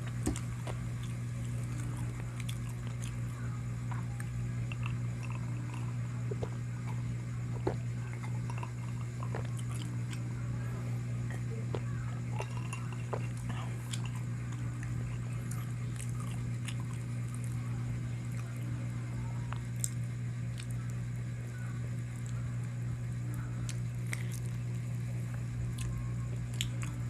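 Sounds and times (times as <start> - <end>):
person chewing food: 0.0 - 10.3, 11.3 - 17.6, 19.5 - 20.9, 23.6 - 27.0
steady low hum: 0.0 - 27.0.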